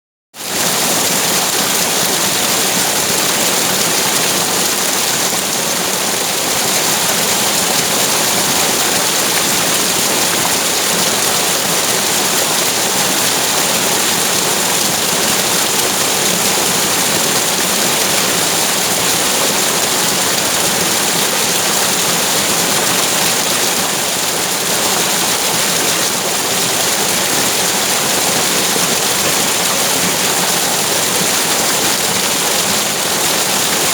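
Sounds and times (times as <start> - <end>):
water rushing: 0.4 - 33.9.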